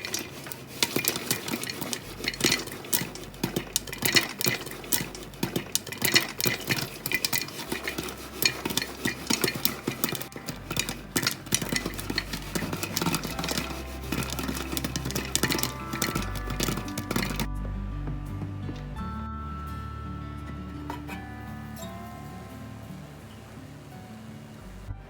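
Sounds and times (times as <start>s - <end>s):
utensil and kernels scraping pan: 0.0s - 17.5s.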